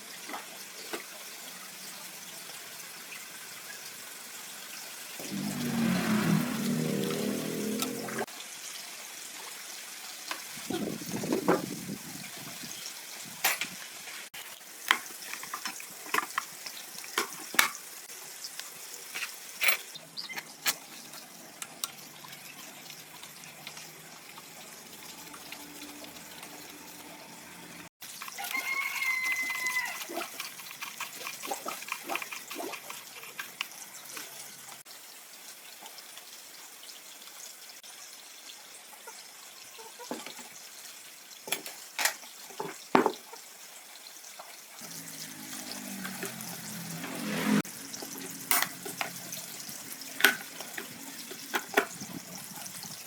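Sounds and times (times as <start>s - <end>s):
rooster crowing: 28.4s - 30.1s.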